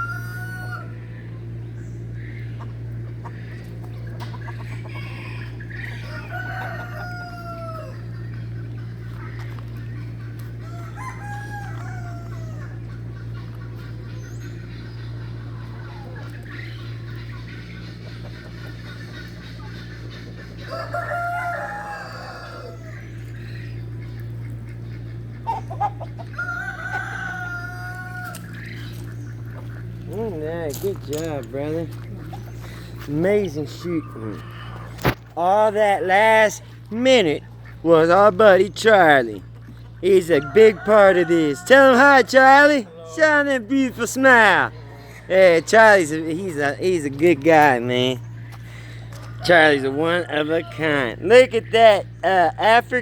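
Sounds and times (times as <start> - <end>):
rooster crowing: 0.0 - 1.2, 4.8 - 8.2, 10.6 - 12.9, 20.6 - 23.2, 26.2 - 29.0, 40.0 - 46.2, 48.8 - 51.2
poultry clucking: 0.0 - 53.0
steady low hum: 0.0 - 53.0.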